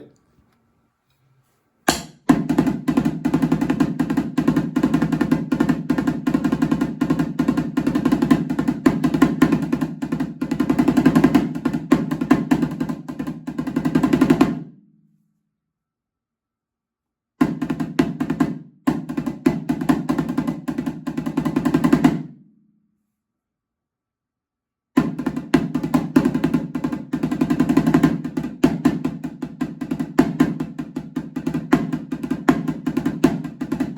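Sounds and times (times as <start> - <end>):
conga hand drumming: 1.9 - 14.5, 25.0 - 33.9.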